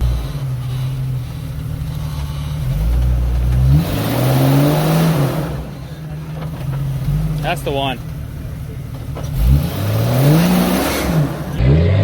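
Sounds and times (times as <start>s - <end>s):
engine revving hard: 3.6s - 5.8s, 9.3s - 12.0s.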